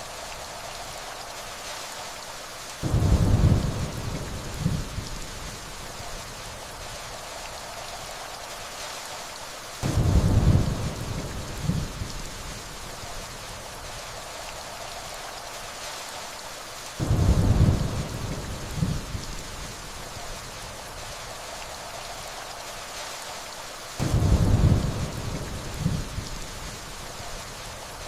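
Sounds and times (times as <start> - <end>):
steady rainfall: 0.0 - 28.0
distant thunder rumbling: 2.8 - 5.6, 9.8 - 12.3, 17.0 - 19.8, 24.0 - 26.8.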